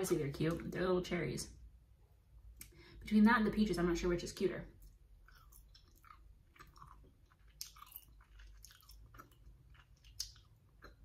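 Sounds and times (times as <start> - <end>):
quiet chewing of gummy candy: 4.8 - 11.0.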